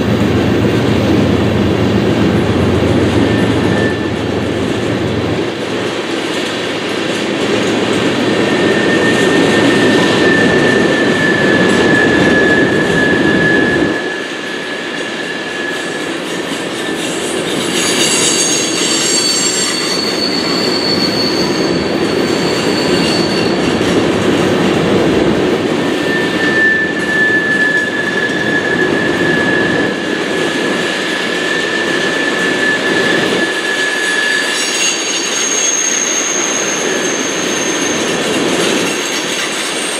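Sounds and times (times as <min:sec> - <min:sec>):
freight cars rumbling: 0:00.0 - 0:14.2
train wheels squealing: 0:00.0 - 0:24.3, 0:25.6 - 0:39.9.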